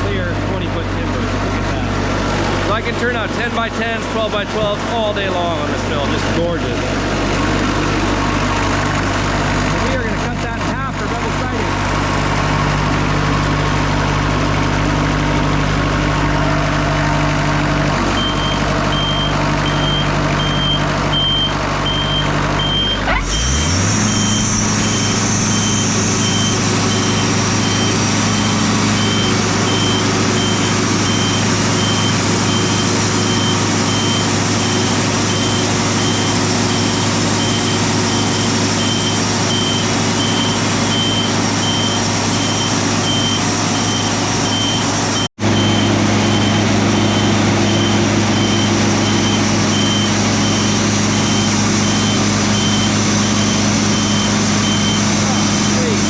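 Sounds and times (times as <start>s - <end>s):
sawmill engine revving: 0.0s - 56.0s
repeated beep: 18.2s - 23.1s, 24.2s - 36.3s, 37.4s - 56.0s
band saw blade cutting timber: 23.1s - 38.0s.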